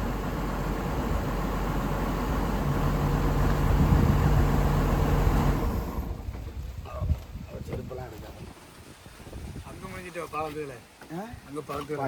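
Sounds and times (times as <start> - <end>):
excavator diesel engine running: 0.0 - 6.3.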